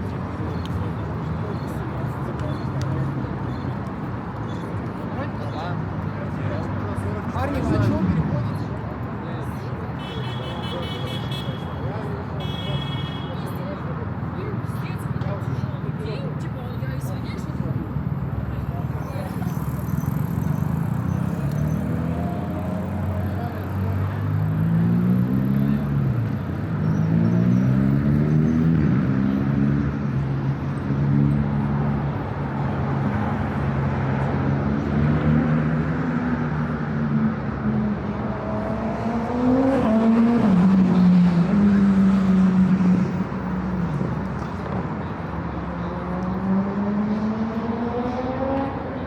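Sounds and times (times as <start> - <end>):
vehicle engines accelerating: 17.6 - 49.0.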